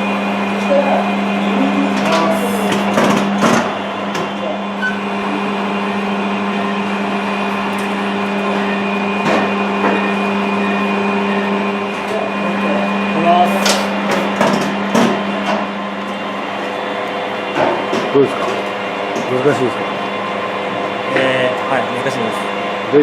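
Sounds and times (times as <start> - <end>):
metal lathe motor hum: 0.0 - 23.0.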